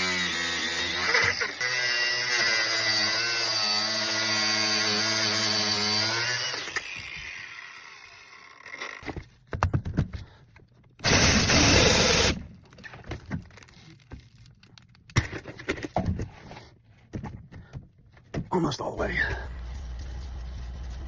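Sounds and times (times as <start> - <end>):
power tool motor running: 0.0 - 9.1, 11.0 - 12.4.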